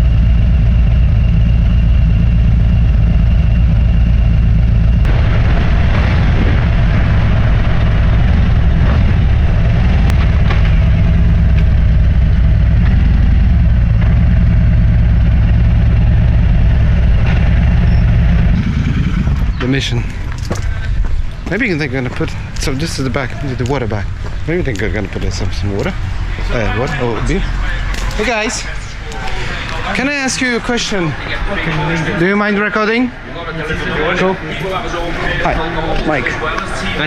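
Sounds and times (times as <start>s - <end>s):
motorcycle engine running: 0.0s - 21.8s
wind rush on microphone: 2.4s - 26.5s.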